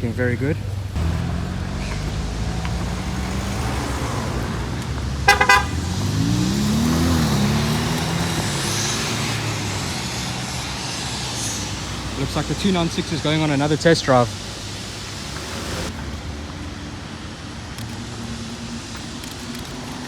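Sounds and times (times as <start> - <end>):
sports car engine revving: 0.6 - 17.2
car horn toot: 1.0 - 6.6.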